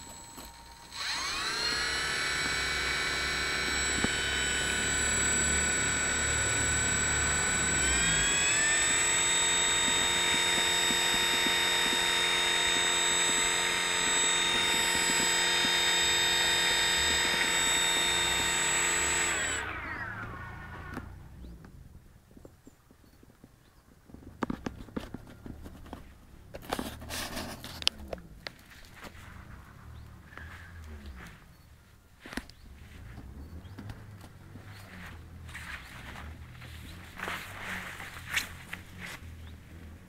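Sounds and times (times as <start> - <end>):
electric motor whine: 0.0 - 21.4.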